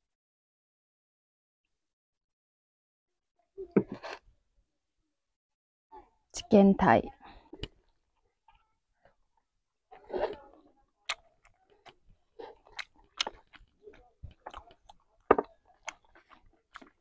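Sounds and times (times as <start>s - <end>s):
wet chewing and biting: 10.0s - 17.0s.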